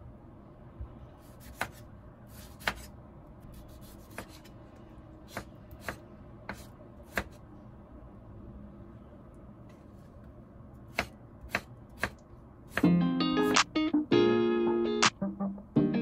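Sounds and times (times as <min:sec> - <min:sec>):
knife slicing a tomato: 0:01.2 - 0:04.5.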